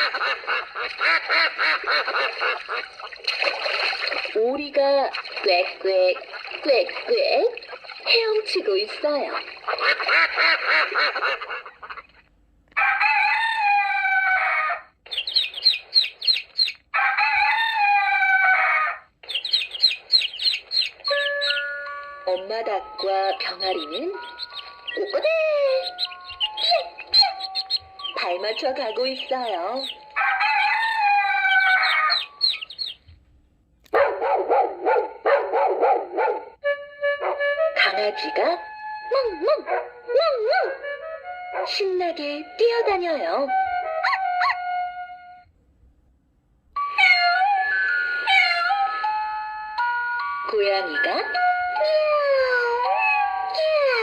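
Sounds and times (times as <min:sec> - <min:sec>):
rooster crowing: 0:12.8 - 0:14.9, 0:16.9 - 0:19.1, 0:30.1 - 0:32.7
chicks peeping: 0:15.1 - 0:33.1
dog barking rapidly: 0:26.0 - 0:28.6, 0:33.9 - 0:36.5, 0:44.0 - 0:44.6.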